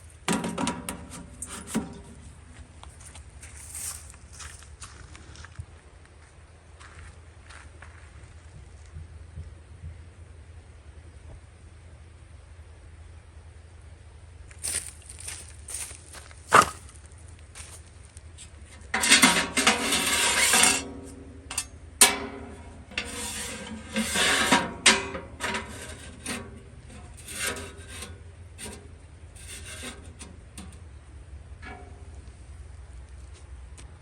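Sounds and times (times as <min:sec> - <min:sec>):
gear rubbing and scraping: 0:00.0 - 0:04.3, 0:18.4 - 0:31.0.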